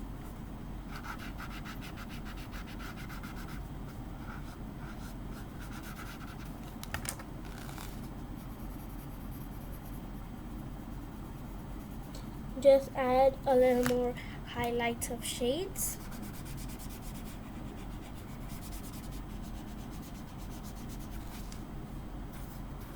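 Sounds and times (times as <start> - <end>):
drawing tool rubbing on paper: 0.9 - 3.6, 16.0 - 21.5.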